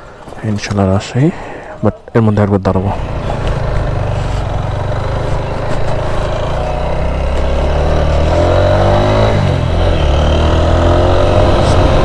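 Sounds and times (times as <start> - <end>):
motorcycle engine accelerating: 2.9 - 12.0.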